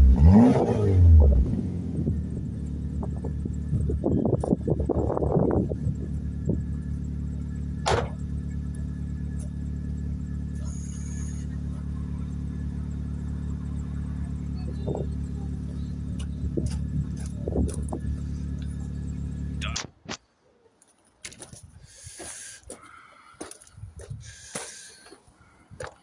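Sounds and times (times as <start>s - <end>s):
car engine idling: 0.0s - 19.8s.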